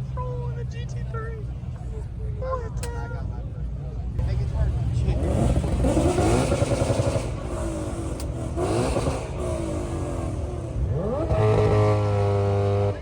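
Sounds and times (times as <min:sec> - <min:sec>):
car engines accelerating and revving: 0:04.0 - 0:13.0.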